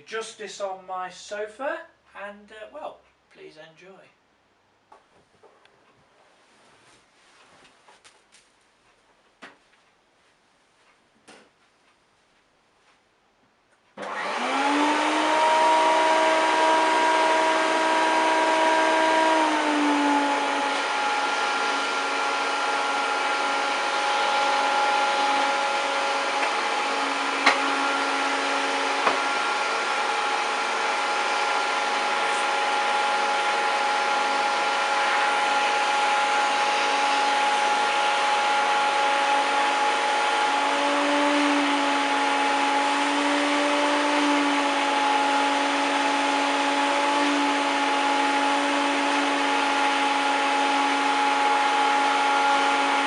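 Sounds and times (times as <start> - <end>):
vacuum cleaner motor whine: 14.0 - 53.0.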